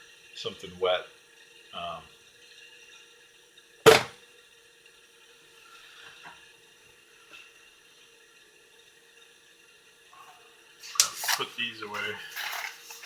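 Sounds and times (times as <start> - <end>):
hard object knocking: 3.9 - 4.2.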